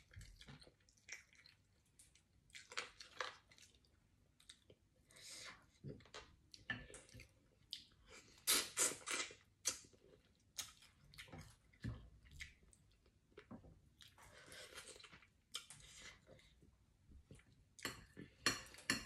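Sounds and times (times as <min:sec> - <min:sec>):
person chewing and sucking: 0:07.7 - 0:10.0.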